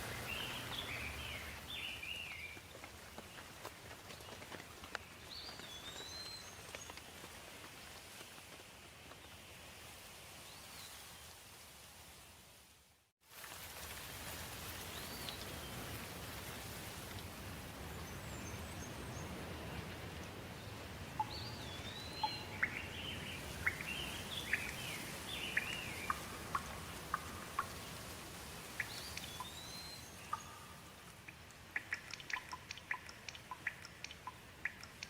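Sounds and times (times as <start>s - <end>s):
birds chirping: 0.0s - 7.0s, 17.9s - 28.0s, 28.7s - 35.0s
steady rain: 0.0s - 8.7s, 11.2s - 35.0s
water drops dripping: 25.5s - 27.9s, 30.3s - 35.0s.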